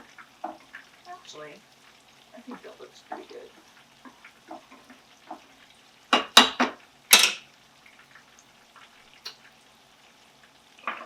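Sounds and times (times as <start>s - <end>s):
metal utensil clanking on pan: 6.1s - 7.5s.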